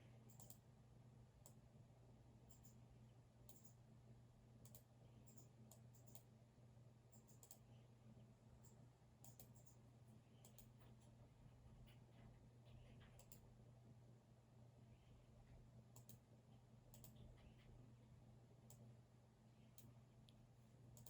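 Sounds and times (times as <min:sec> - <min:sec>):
steady low hum: 0:00.0 - 0:21.0
keyboard and mouse clicks: 0:00.3 - 0:00.6, 0:04.6 - 0:06.3, 0:08.6 - 0:09.8, 0:10.4 - 0:10.8, 0:13.0 - 0:13.4, 0:16.0 - 0:16.2, 0:16.9 - 0:17.2.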